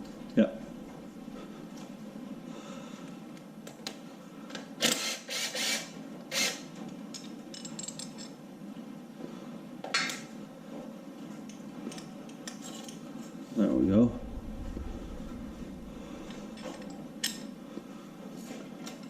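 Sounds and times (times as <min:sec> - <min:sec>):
low steady hum: 0:00.0 - 0:04.2, 0:13.5 - 0:19.0.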